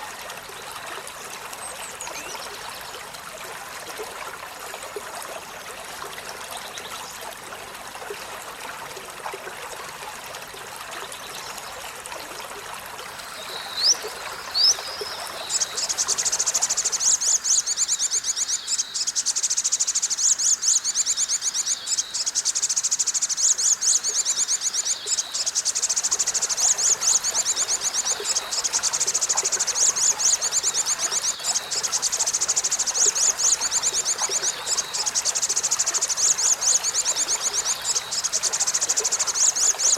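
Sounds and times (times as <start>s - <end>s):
running water: 0.0s - 39.9s
bird chirping and trilling: 13.5s - 28.7s.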